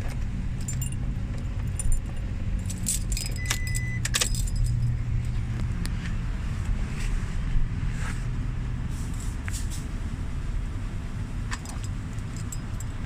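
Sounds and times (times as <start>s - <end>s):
car keys jangling: 0.0s - 5.5s, 11.5s - 13.0s
steady low rumble: 0.0s - 13.0s
short high beep: 3.4s - 4.0s.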